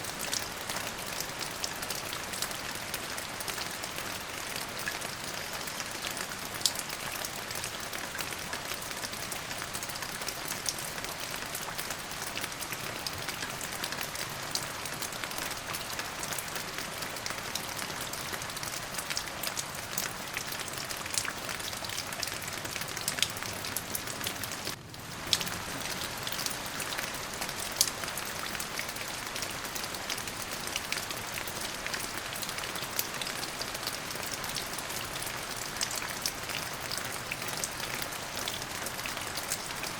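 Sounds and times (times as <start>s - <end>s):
rain falling: 0.0s - 39.9s
raindrops ticking on a surface: 0.0s - 39.9s.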